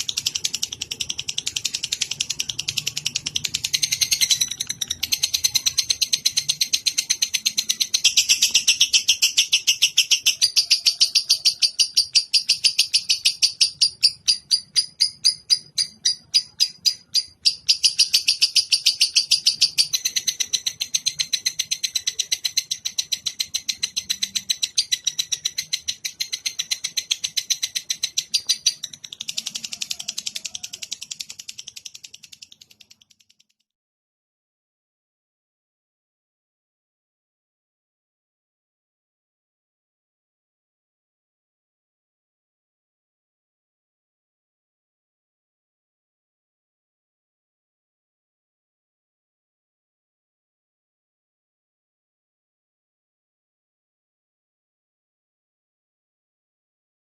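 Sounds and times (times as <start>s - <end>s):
lovebird chirping: 0.0s - 33.7s.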